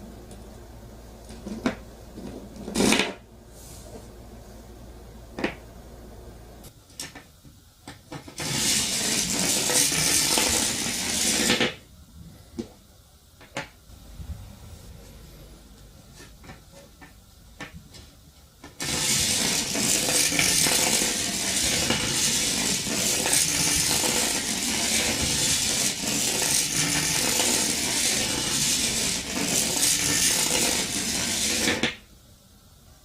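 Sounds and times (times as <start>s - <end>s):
metallic rattling scrape: 8.4s - 11.7s, 18.8s - 31.8s.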